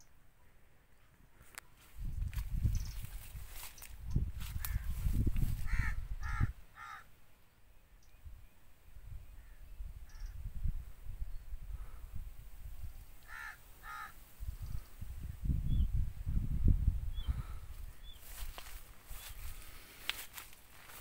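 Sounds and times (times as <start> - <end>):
bird calling: 5.6 - 7.1, 13.2 - 14.9.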